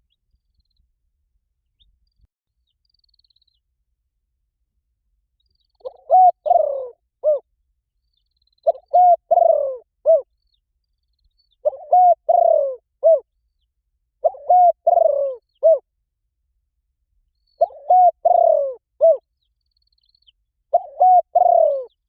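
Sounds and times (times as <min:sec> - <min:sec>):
dove cooing: 0:05.8 - 0:07.4, 0:08.6 - 0:10.2, 0:11.6 - 0:13.2, 0:14.2 - 0:15.8, 0:17.6 - 0:19.2, 0:20.7 - 0:22.0.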